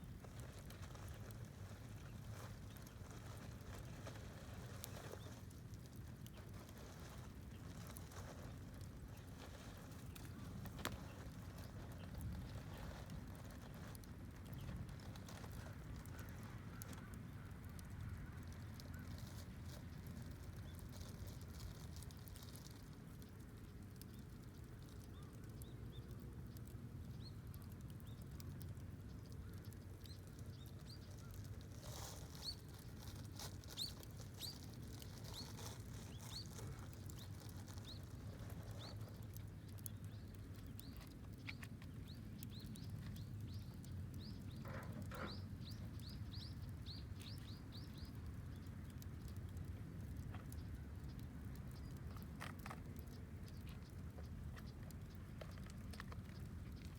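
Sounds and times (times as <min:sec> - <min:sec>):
campfire crackling: 0:00.0 - 0:56.9
small bird chirping: 0:29.1 - 0:49.4.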